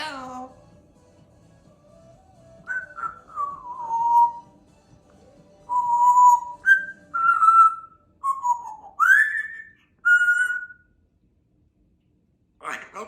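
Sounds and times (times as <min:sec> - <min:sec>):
parrot whistling a tune: 0:02.6 - 0:04.5, 0:05.7 - 0:10.9.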